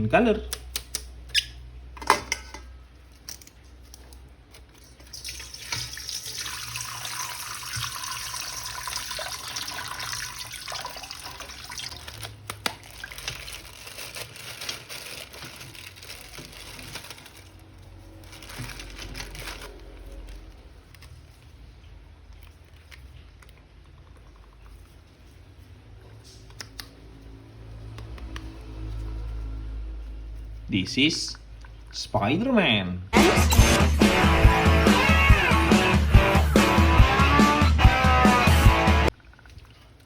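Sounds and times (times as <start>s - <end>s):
water running from tap into sink: 5.0s - 12.1s.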